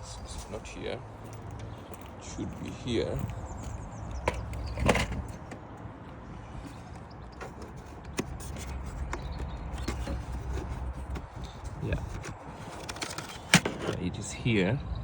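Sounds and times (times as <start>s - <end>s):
clicks and knocks of handling: 3.2s - 14.0s.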